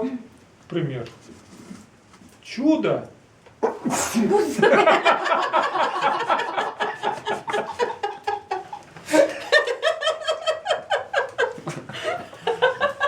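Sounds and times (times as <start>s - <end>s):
people laughing: 3.7s - 13.0s.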